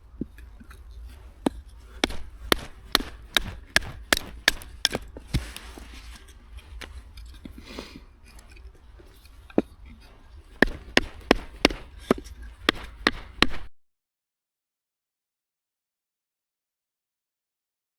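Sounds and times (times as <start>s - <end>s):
knife chopping on wooden board: 1.8s - 7.0s, 10.5s - 13.7s.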